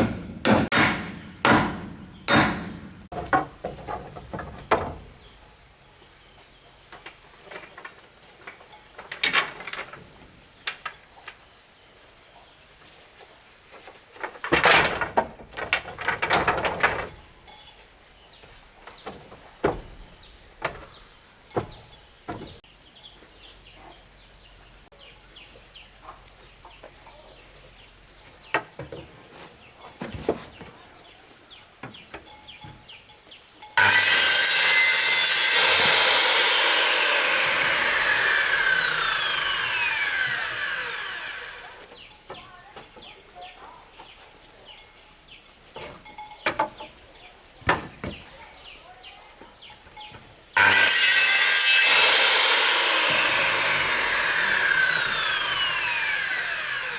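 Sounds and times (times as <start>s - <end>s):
wood knocking and clattering: 0.0s - 5.4s, 6.9s - 11.4s, 13.8s - 22.6s, 45.7s - 48.6s
wood scraping: 0.0s - 5.6s, 6.4s - 11.5s, 13.1s - 22.7s, 33.8s - 44.7s, 45.6s - 56.9s.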